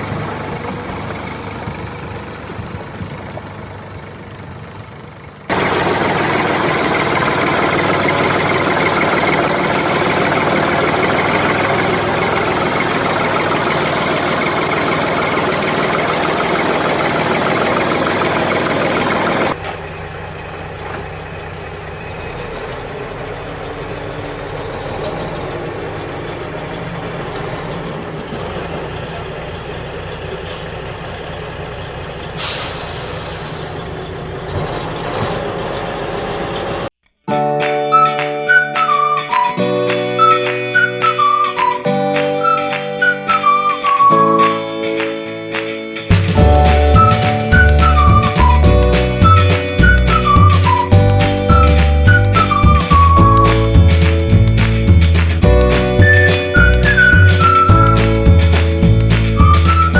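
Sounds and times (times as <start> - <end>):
short sharp hiss: 32.4 - 33.8.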